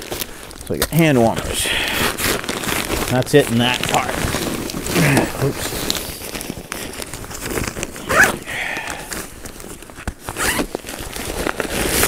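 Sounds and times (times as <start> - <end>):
nylon fabric rustling: 0.0 - 12.0
zipper being worked: 7.6 - 8.5, 10.2 - 12.0.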